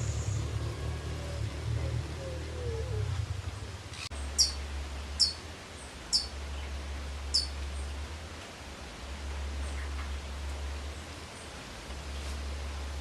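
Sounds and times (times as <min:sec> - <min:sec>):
bird chirping: 0:00.0 - 0:07.9
low rumble: 0:00.0 - 0:08.3.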